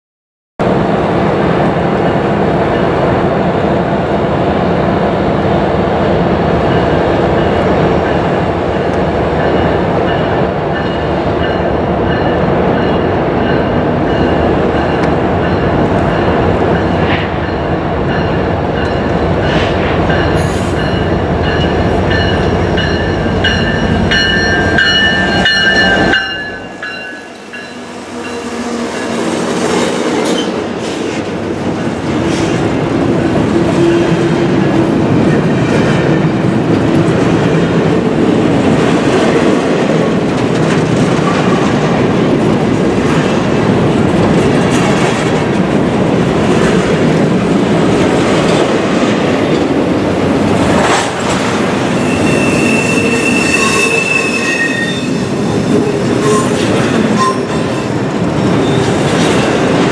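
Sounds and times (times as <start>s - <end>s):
train rumbling past: 0.6s - 59.9s
high-pitched wheel squeal: 51.8s - 57.7s.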